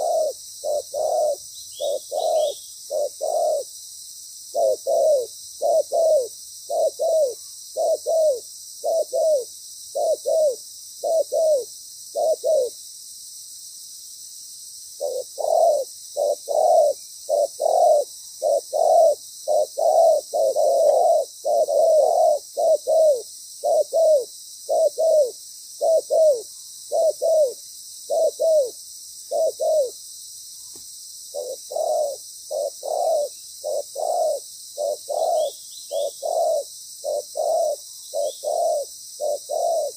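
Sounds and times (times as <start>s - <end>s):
dove cooing: 0.0s - 3.7s, 4.5s - 12.8s, 15.0s - 30.0s, 31.3s - 39.9s.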